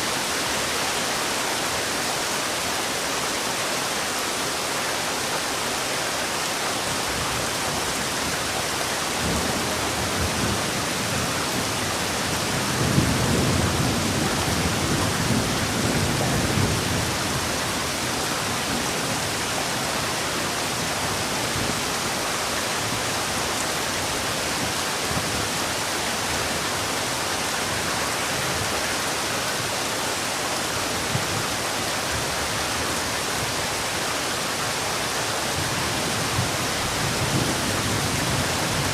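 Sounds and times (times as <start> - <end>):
heavy rain falling: 0.0 - 38.9
low rumble of thunder: 9.2 - 17.5.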